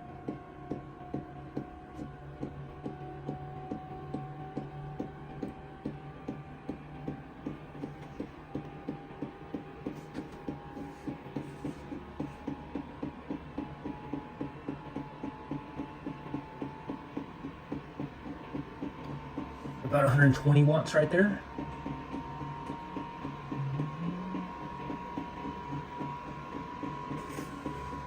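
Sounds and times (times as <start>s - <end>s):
blower fan humming: 6.9s - 28.0s.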